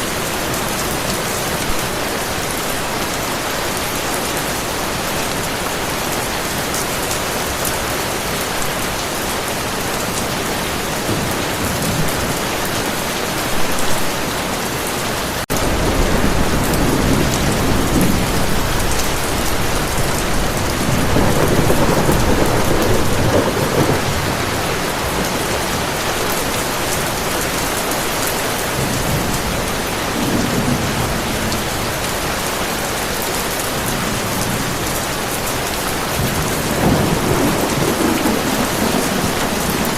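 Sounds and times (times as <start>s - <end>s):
heavy rain: 0.0s - 39.9s
thunder rumbling: 15.5s - 27.7s, 33.7s - 39.9s.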